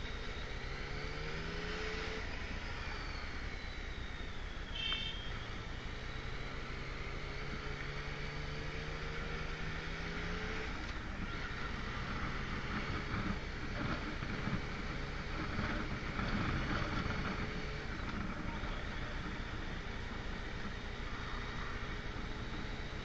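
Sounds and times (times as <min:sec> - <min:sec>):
motorcycle engine cruising: 0:00.0 - 0:23.0
wind noise on microphone: 0:12.0 - 0:19.4.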